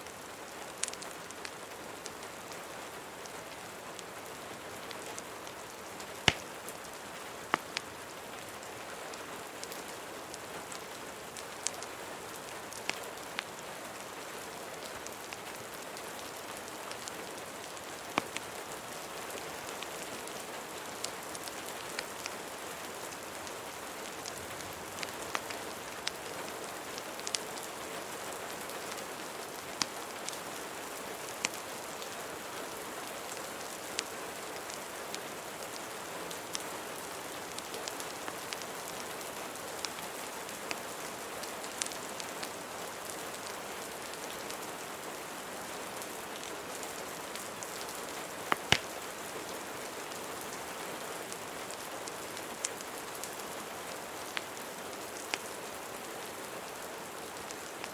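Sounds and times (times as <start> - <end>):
steady rain: 0.0 - 57.9
wood fire crackling and popping: 0.7 - 2.3, 3.6 - 8.6, 9.4 - 13.6, 14.8 - 27.8, 28.8 - 31.7, 33.3 - 42.6, 47.3 - 48.9, 54.2 - 55.6.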